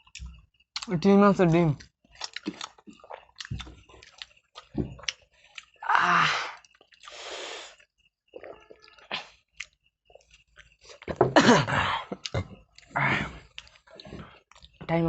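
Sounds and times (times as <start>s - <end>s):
chewing and squelching: 0.0s - 1.0s, 1.8s - 5.8s, 6.6s - 11.2s, 12.1s - 14.8s
heavy breaths: 12.8s - 14.5s.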